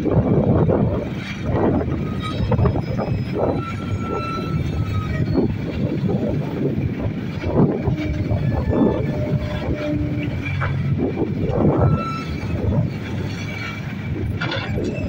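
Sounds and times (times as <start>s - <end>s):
excavator diesel engine running: 0.0s - 15.0s
metal clanks and knocks: 9.4s - 15.0s.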